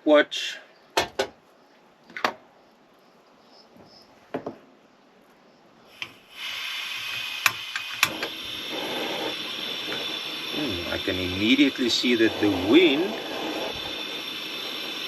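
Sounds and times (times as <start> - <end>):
gas burner hissing: 5.9 - 15.0
stove igniter clicks: 7.1 - 8.9.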